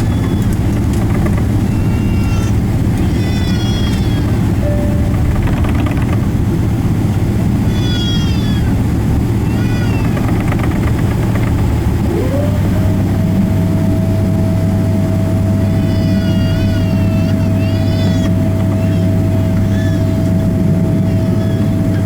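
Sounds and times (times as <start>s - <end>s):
airliner cabin drone: 0.0s - 22.0s
high wavering meow-like cries: 1.9s - 5.1s, 7.7s - 8.8s, 15.6s - 20.3s, 20.9s - 21.9s
rising whine: 4.6s - 7.8s, 10.8s - 15.8s.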